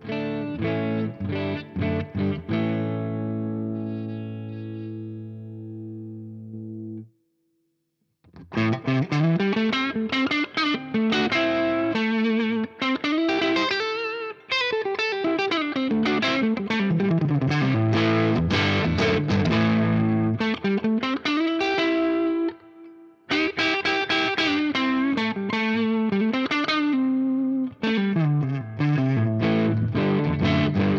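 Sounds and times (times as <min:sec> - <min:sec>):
electric guitar: 0:00.0 - 0:07.1, 0:08.3 - 0:30.9.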